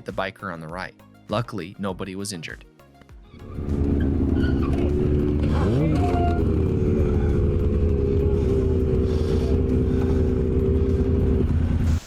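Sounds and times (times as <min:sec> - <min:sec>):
motorcycle engine rumbling: 0:03.4 - 0:12.0.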